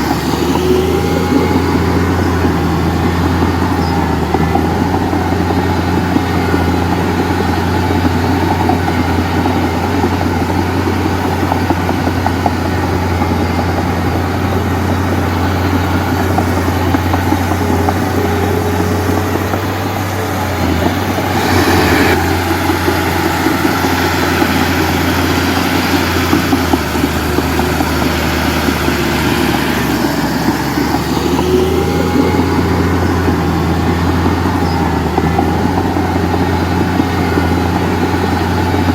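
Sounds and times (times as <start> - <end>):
diesel machinery engine hum: 0.0 - 38.9.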